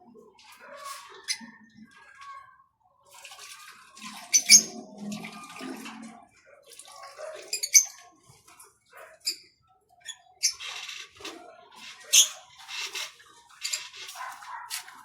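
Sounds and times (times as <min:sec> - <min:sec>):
birds splashing in water: 0:03.1 - 0:08.3.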